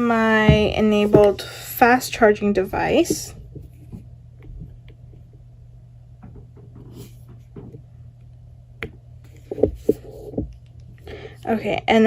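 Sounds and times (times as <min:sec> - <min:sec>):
steady low hum: 0:00.0 - 0:12.0
soft thumps: 0:00.4 - 0:01.4.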